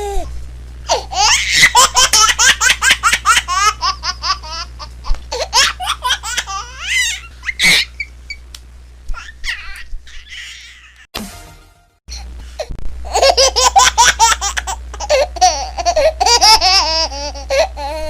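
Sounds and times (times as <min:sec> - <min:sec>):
baby laughing: 0:00.9 - 0:08.1, 0:09.1 - 0:11.1, 0:13.1 - 0:18.0
baby squealing: 0:09.1 - 0:11.1.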